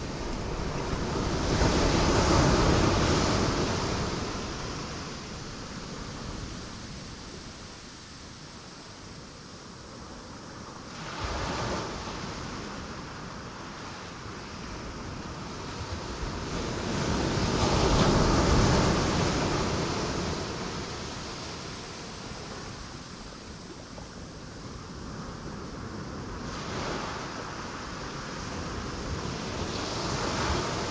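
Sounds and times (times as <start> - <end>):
waves breaking on rocks: 0.0 - 7.0.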